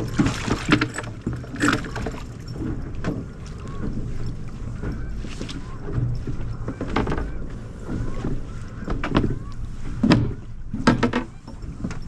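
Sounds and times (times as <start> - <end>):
water rushing: 0.0 - 5.8
wind: 0.0 - 12.0.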